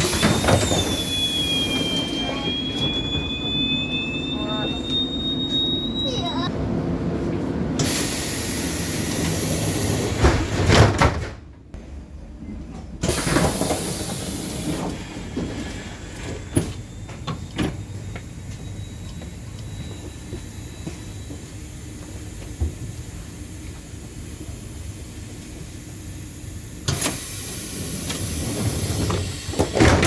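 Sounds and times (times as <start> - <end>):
train car low rumble: 0.0 - 10.6, 11.4 - 29.8
air hiss of doors: 7.8 - 10.6, 13.0 - 15.1, 25.8 - 29.9.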